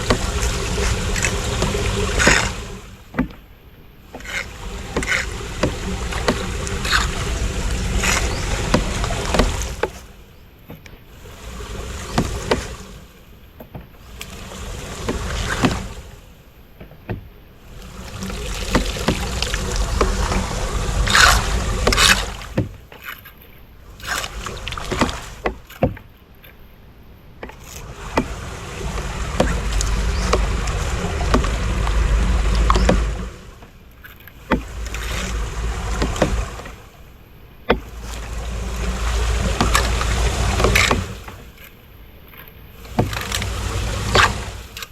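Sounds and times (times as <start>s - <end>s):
floodwater splashing: 0.0s - 26.1s, 27.4s - 44.9s
low rumble: 4.2s - 10.3s, 17.6s - 22.9s, 27.8s - 41.6s.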